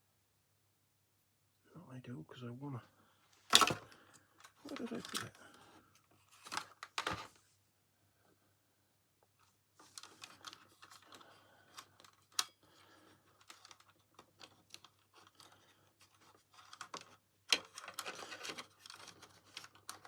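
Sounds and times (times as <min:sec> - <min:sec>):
tools clicking and rustling: 0:03.5 - 0:05.6, 0:09.8 - 0:20.0.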